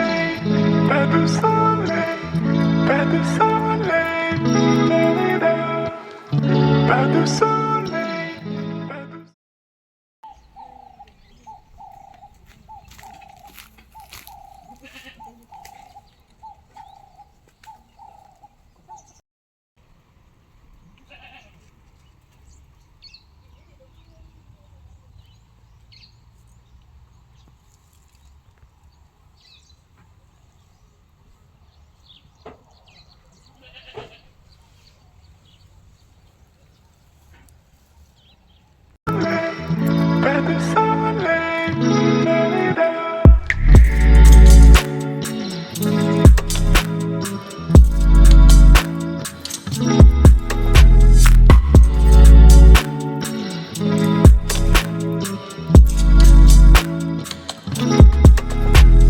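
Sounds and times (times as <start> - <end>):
animal call: 10.2 - 19.2
low rumble: 43.3 - 44.8.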